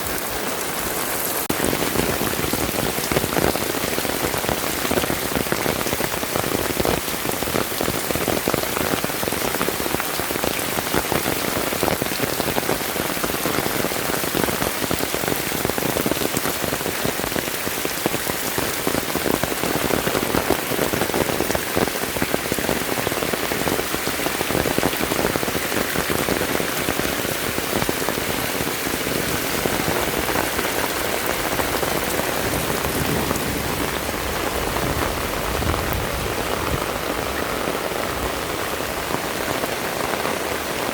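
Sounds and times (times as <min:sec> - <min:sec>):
heavy rain patter: 0:00.0 - 0:40.9.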